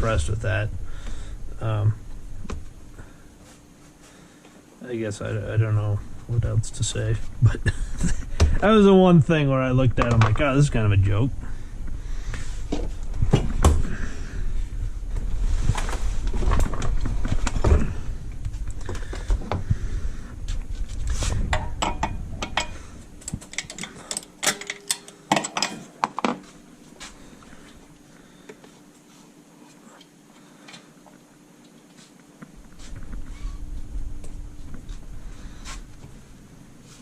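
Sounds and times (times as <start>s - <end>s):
faint steady hum: 0.0s - 37.0s
tools and metal parts clinking: 21.6s - 26.1s.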